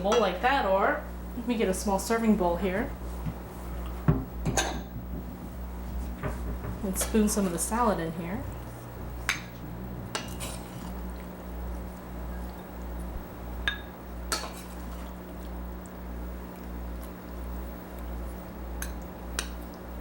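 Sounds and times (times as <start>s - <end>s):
steady low hum: 0.0s - 20.0s
spoon clinking against bowls: 13.6s - 14.7s.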